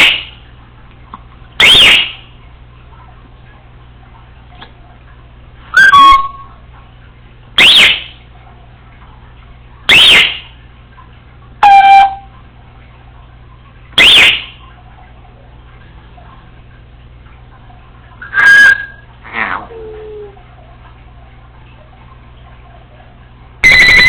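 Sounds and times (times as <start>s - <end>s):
parrot whistled calls: 1.6s - 2.2s, 5.7s - 6.5s, 7.6s - 8.1s, 9.9s - 10.5s, 11.6s - 12.3s, 14.0s - 14.5s, 18.2s - 19.0s, 23.6s - 24.0s.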